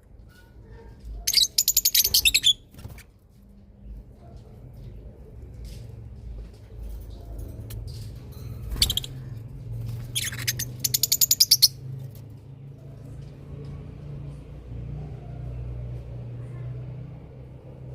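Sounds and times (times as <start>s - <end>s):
bird trill: 1.3s - 2.6s, 8.6s - 9.3s, 10.1s - 11.8s.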